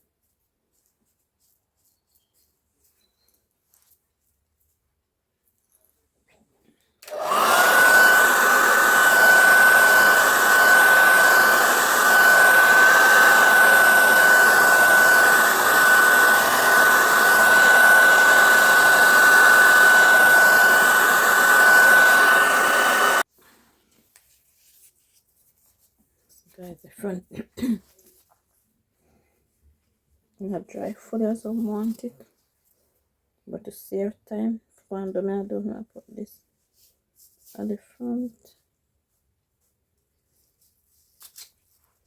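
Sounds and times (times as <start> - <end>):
hair dryer blowing with whine: 7.0 - 23.3.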